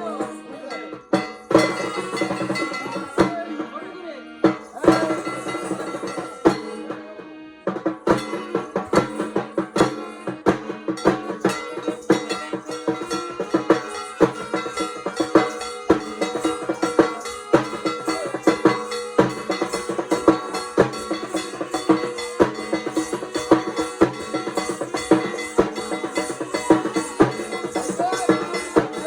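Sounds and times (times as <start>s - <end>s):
metallic percussion: 0.0s - 3.8s, 4.4s - 7.1s, 7.7s - 29.0s
held drone tone: 0.0s - 29.0s
fast dense drumming: 7.7s - 29.0s.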